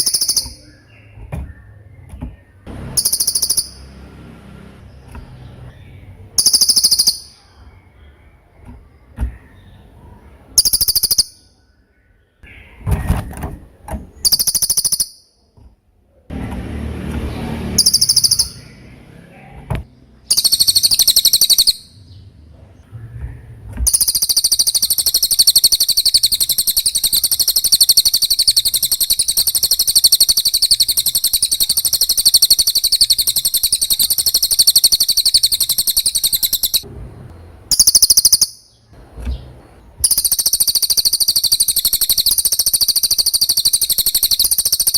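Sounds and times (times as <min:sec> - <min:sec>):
bird calling in shrill bursts: 0:00.0 - 0:00.7, 0:02.7 - 0:04.0, 0:06.4 - 0:07.4, 0:10.6 - 0:11.5, 0:14.2 - 0:15.4, 0:17.8 - 0:18.8, 0:20.3 - 0:22.0, 0:23.9 - 0:36.9, 0:37.7 - 0:38.8, 0:40.0 - 0:44.9
bird trilling song: 0:00.0 - 0:15.5, 0:16.8 - 0:44.9.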